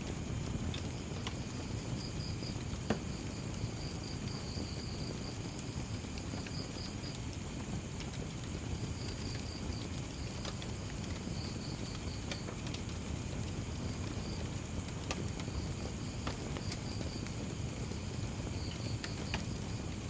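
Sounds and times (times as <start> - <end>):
wood fire crackling: 0.0 - 20.0
cricket chirping: 18.0 - 20.0.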